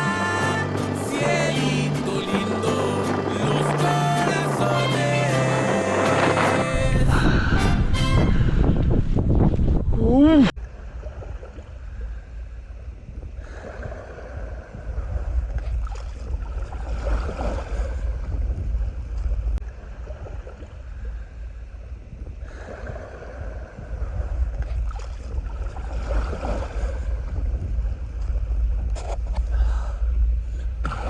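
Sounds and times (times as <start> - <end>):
water splashing along kayak hull: 0.0 - 6.9, 22.4 - 29.3
low wind rumble on microphone: 0.0 - 31.0.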